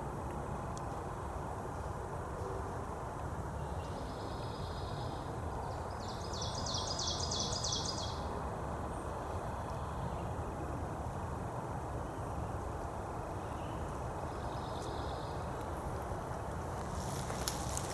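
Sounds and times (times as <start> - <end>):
songbird singing: 3.6 - 8.3, 13.4 - 15.8.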